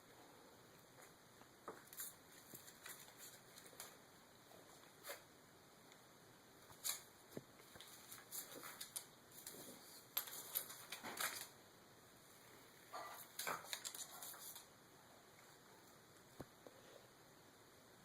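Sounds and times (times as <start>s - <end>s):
paper rustling and scraping: 6.7s - 11.5s, 13.0s - 14.7s.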